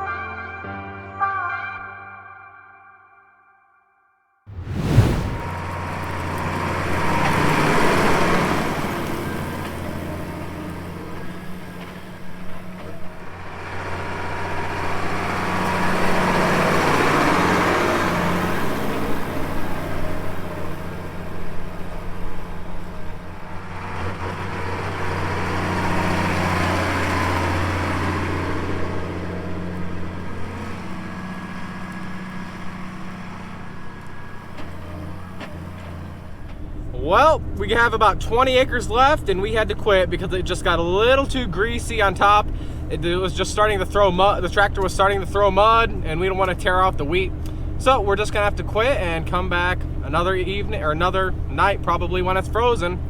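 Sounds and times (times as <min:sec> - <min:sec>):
rushing noise: 0:04.5 - 0:05.7
tractor engine droning: 0:05.0 - 0:53.0.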